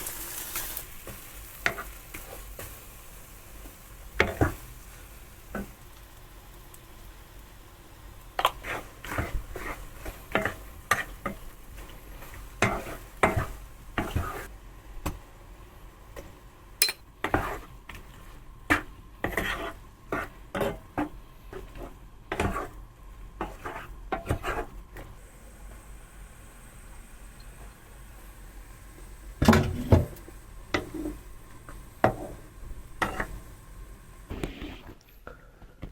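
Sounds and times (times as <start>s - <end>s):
utensil scraping a pan: 0.0s - 2.8s, 4.2s - 4.8s, 8.4s - 14.5s, 17.2s - 22.8s, 23.4s - 24.8s, 32.0s - 33.4s
faint sizzle: 0.0s - 35.9s.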